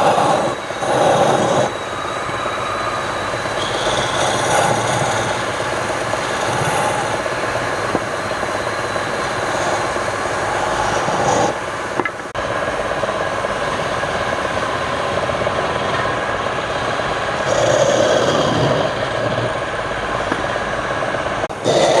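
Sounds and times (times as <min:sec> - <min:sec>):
wood lathe running: 0:00.0 - 0:22.0
turning tool scraping wood: 0:03.5 - 0:11.6.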